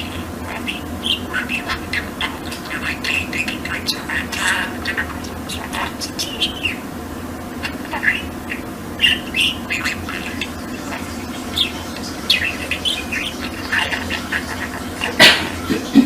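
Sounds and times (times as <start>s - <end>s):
budgerigar chattering: 0.0s - 6.9s, 7.6s - 16.0s
steady low hum: 0.0s - 16.0s.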